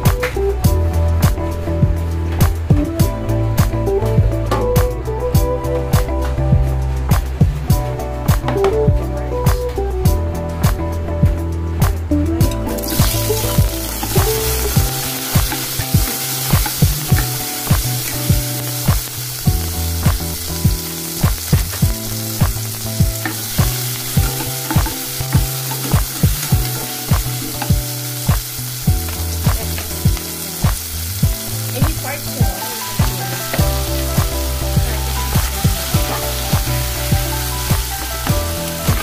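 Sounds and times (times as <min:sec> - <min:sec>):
vegetables sizzling in oil: 0:12.6 - 0:39.0.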